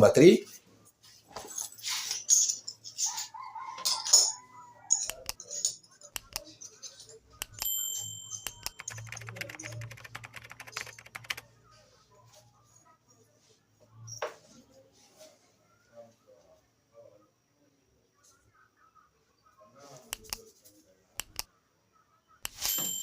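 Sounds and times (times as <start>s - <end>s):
rapid ticking: 8.4s - 11.4s
metal parts clicking and clinking: 22.5s - 23.0s.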